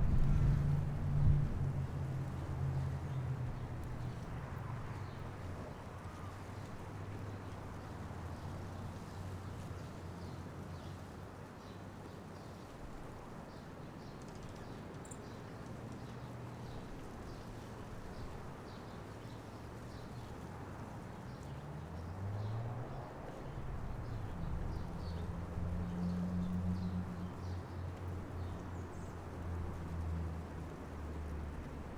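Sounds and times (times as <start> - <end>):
vehicle engine approaching: 0.0 - 8.3, 20.2 - 31.9
distant traffic hum: 0.0 - 31.9.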